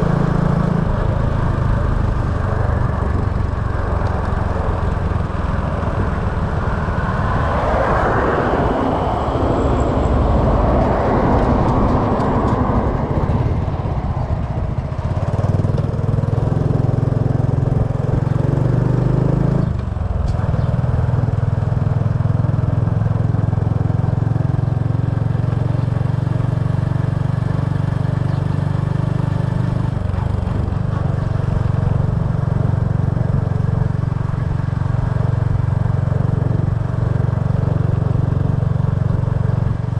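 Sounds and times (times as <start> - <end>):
motorbike engine running: 0.0 - 7.2, 10.0 - 39.9
rush of noise: 0.0 - 15.6.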